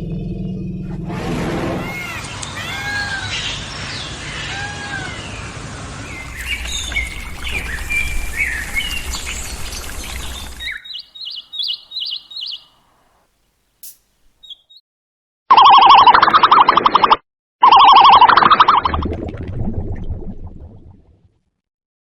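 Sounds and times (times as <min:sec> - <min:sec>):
birds chirping and calling: 0:01.9 - 0:13.0, 0:14.4 - 0:14.8
arching whistled bird notes: 0:01.9 - 0:13.1, 0:14.4 - 0:14.8
high bird chirps: 0:06.1 - 0:12.9, 0:13.8 - 0:14.8.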